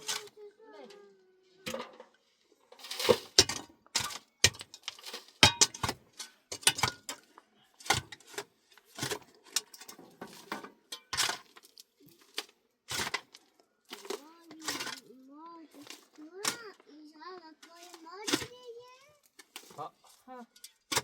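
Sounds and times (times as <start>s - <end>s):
small hard objects clinking: 2.6s - 8.2s, 8.8s - 16.2s.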